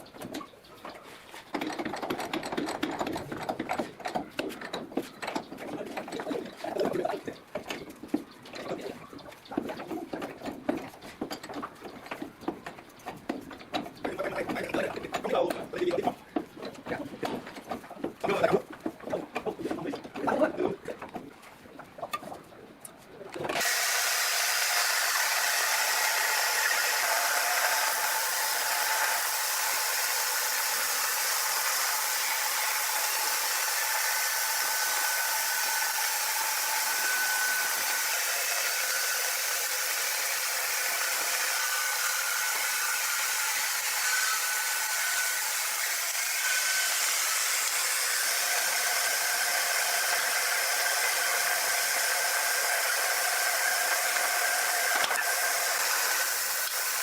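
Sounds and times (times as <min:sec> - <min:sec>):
sawmill machinery whirring: 0:23.4 - 0:57.0.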